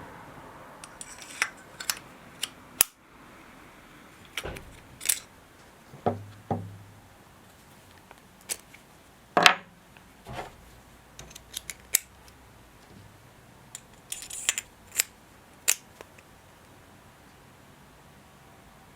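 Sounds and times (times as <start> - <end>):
metal parts clicking and knocking: 4.3 - 5.4, 10.3 - 12.1, 14.0 - 15.1
low thud: 4.4 - 5.4, 6.0 - 7.1, 10.3 - 10.8.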